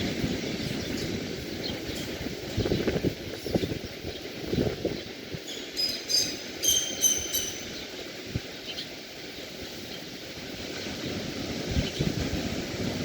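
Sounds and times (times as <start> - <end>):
sea surf rushing: 0.0 - 13.0
bird calling short high notes: 6.2 - 7.7.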